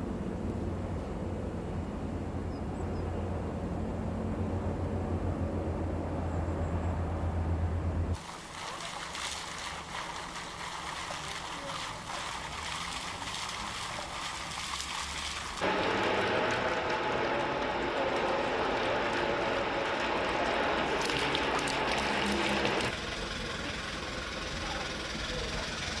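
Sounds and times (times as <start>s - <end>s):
low engine hum: 0.0s - 26.0s
mid-pitched engine drone: 0.0s - 26.0s
water spray hiss: 8.2s - 15.8s.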